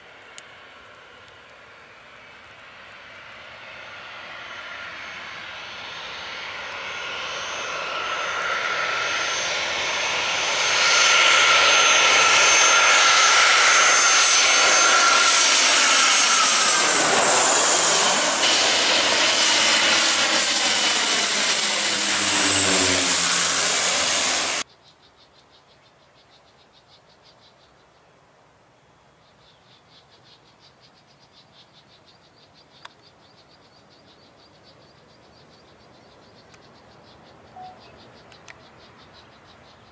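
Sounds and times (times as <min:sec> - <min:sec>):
airliner passing overhead: 0:00.0 - 0:24.6
jet engine whine: 0:00.0 - 0:24.7
insects chirping: 0:29.3 - 0:39.9.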